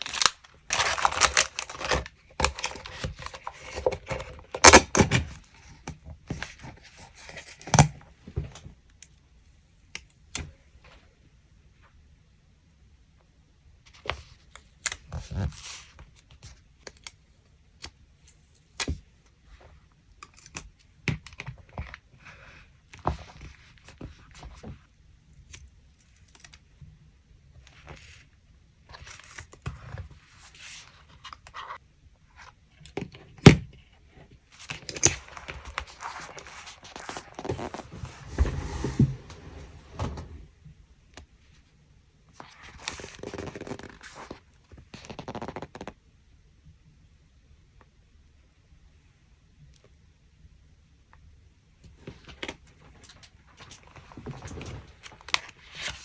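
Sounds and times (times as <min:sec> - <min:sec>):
paper rustling and scraping: 0:00.0 - 0:04.7, 0:34.6 - 0:40.4, 0:53.6 - 0:56.0.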